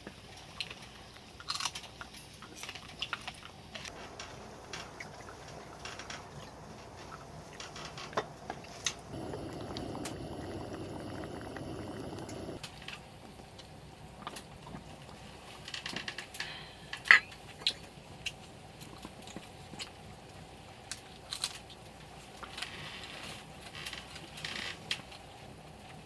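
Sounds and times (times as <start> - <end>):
liquid pouring: 9.2 - 12.6.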